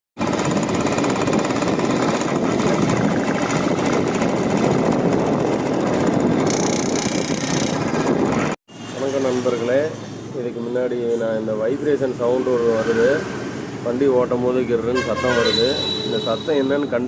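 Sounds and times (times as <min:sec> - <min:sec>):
motorcycle rattling buzz: 0:00.2 - 0:08.6.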